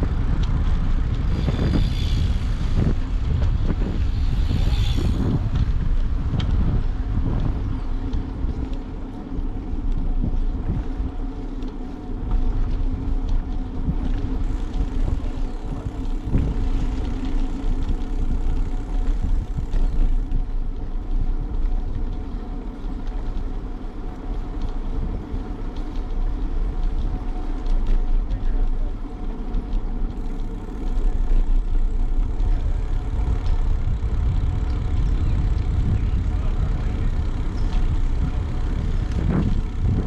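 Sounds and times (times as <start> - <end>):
bicycle rumbling and rattling: 0.0 - 40.0
constant low hum: 0.0 - 40.0
scattered ticks and knocks: 11.5 - 20.6.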